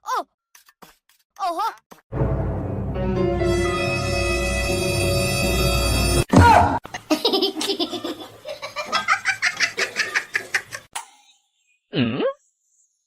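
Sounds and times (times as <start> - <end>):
background music: 2.1 - 6.8.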